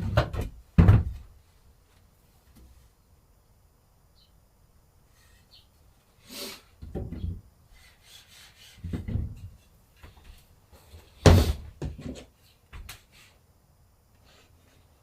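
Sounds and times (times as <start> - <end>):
rubbing scrape: 7.8 - 9.1.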